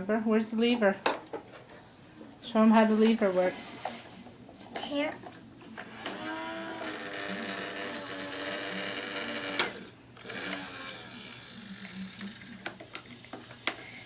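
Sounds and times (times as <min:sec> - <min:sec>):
toy motor whirring: 0:05.9 - 0:14.0.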